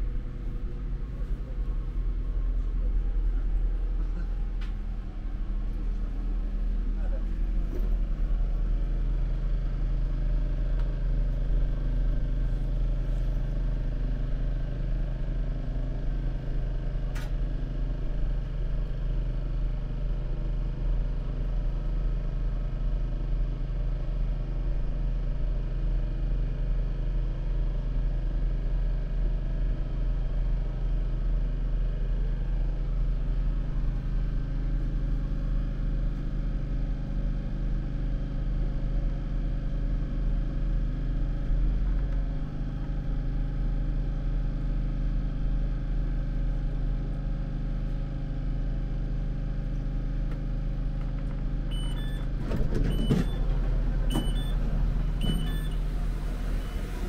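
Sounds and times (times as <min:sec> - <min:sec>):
diesel train rumbling: 0:00.0 - 0:14.1, 0:51.0 - 0:57.0.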